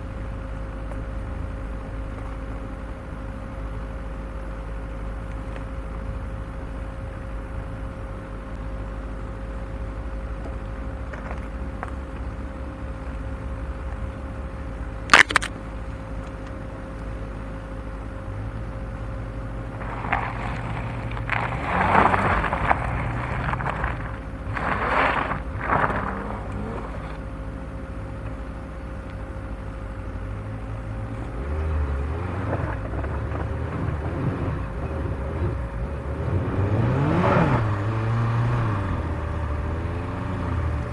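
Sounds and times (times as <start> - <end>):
vehicle engine running low: 0.0 - 40.9
branches scraping along vehicle: 15.1 - 16.5, 19.4 - 28.2, 31.2 - 40.9.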